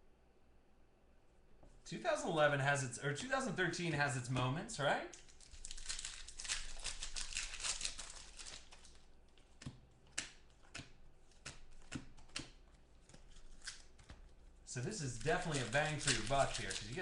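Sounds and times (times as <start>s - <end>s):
foil wrappers crinkling and tearing: 5.1s - 17.0s.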